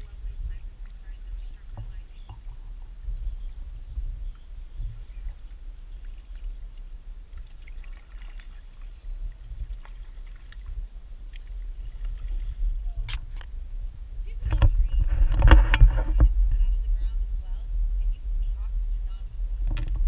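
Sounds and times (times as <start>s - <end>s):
steady low rumble: 0.0s - 20.0s
paddle splashes and drips: 4.3s - 12.8s.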